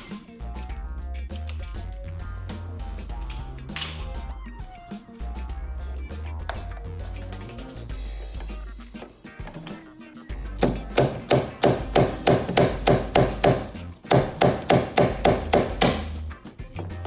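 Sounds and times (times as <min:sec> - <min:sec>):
background music: 0:00.0 - 0:17.0
slide hammer metallic knocks: 0:10.6 - 0:16.3.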